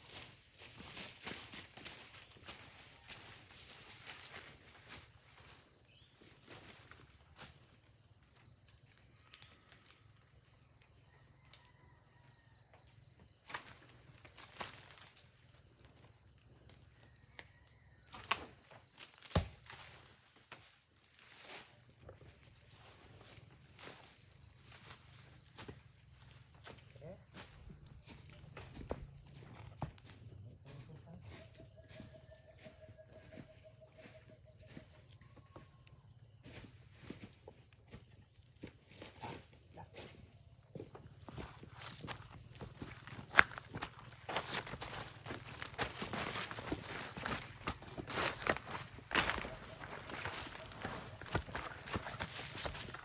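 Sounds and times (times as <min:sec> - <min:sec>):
insects chorus: 0:00.0 - 0:53.0
footsteps: 0:40.8 - 0:53.0.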